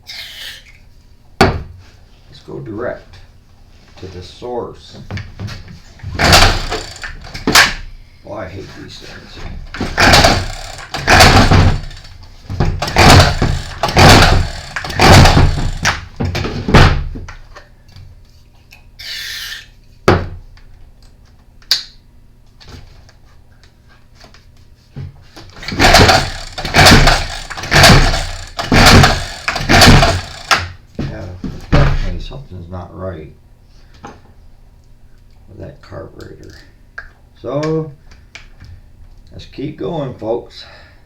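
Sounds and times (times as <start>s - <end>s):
recoil starter pulls: 6.2s - 7.8s, 9.7s - 16.1s, 25.6s - 30.8s.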